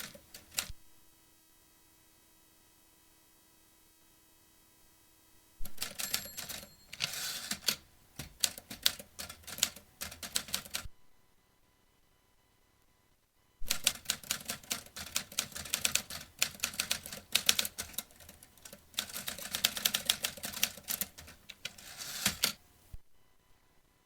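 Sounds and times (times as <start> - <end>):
typewriter key strikes: 13.7 - 22.6.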